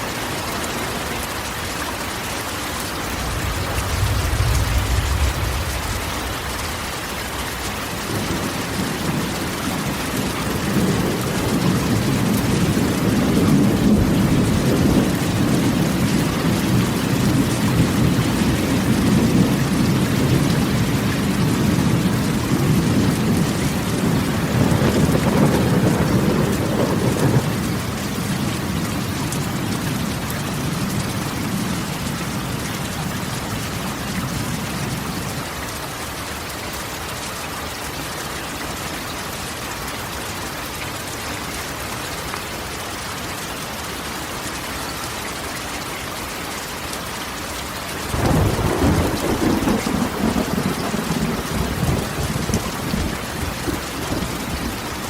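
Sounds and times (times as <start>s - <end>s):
rain on a metal roof: 0.0s - 55.0s
thunder rumbling: 3.0s - 35.3s, 48.1s - 55.0s.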